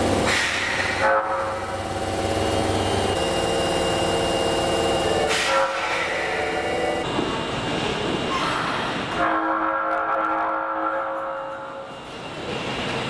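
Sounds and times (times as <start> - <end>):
train running noise: 0.0 - 13.0
train warning horn: 0.6 - 2.0, 5.0 - 7.1, 9.1 - 11.9.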